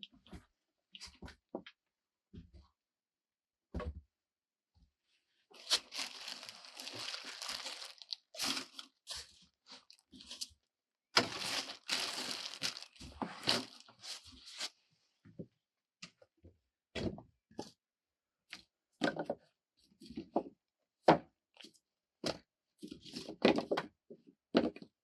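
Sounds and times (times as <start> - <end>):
crinkling and tearing handling noise: 5.6 - 10.4, 11.2 - 14.7.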